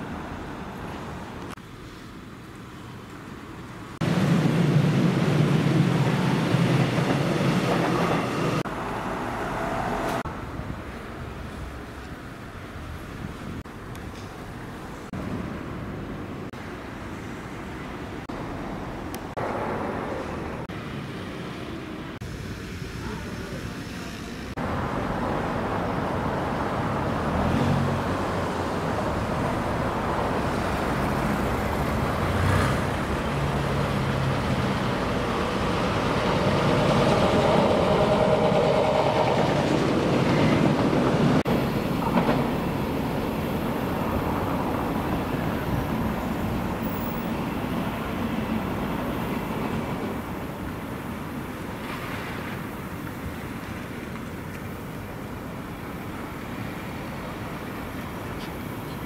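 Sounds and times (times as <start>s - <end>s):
electric train running past: 4.0s - 10.6s, 17.1s - 53.0s.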